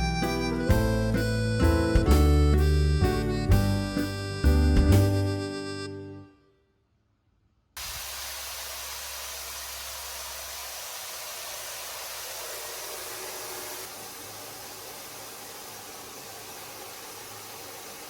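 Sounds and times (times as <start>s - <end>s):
rushing hiss: 7.8s - 18.0s.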